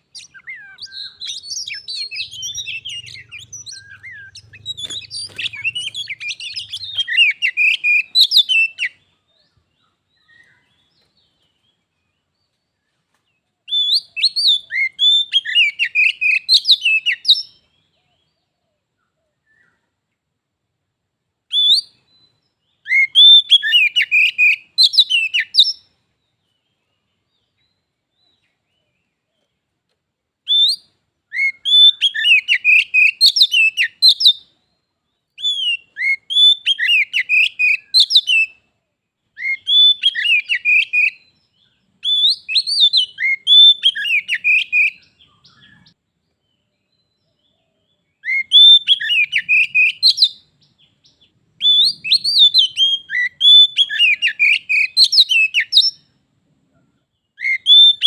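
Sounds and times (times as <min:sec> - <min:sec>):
bird singing whistled phrases: 0:00.0 - 0:09.5, 0:13.7 - 0:17.8, 0:21.5 - 0:25.9, 0:30.4 - 0:38.6, 0:39.4 - 0:46.0, 0:48.1 - 0:56.1, 0:57.3 - 0:58.0.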